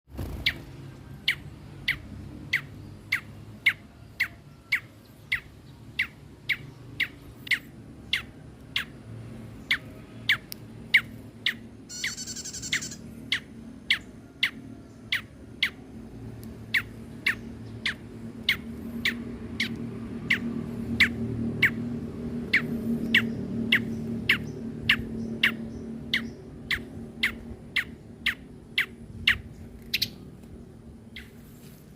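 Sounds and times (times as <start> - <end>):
bird buzzy rattle: 0.1 - 0.8
songbird chip calls: 0.4 - 9.0, 9.6 - 15.8, 16.7 - 21.8, 22.4 - 30.2.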